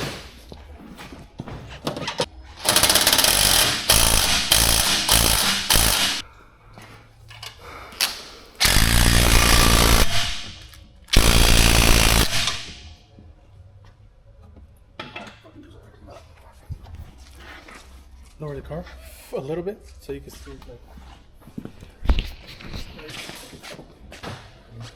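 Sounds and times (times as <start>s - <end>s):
impact wrench hammering: 2.6s - 6.2s, 8.0s - 12.9s.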